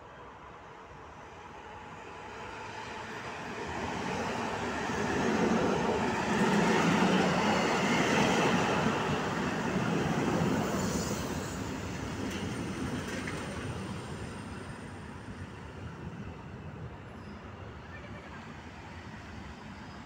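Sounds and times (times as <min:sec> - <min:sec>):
train wheels rumbling on rails: 0:03.3 - 0:16.4.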